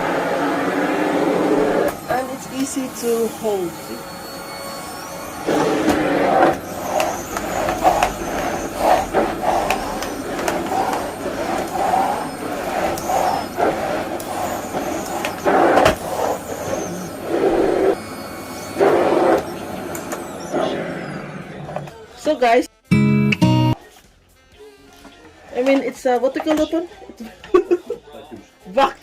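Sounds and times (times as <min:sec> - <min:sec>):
vacuum cleaner running: 0:00.0 - 0:22.5.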